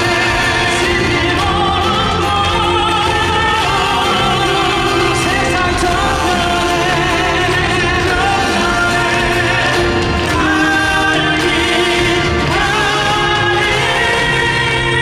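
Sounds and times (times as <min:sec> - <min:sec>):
backing music: 0:00.0 - 0:15.0
voices singing with vibrato: 0:00.0 - 0:15.0.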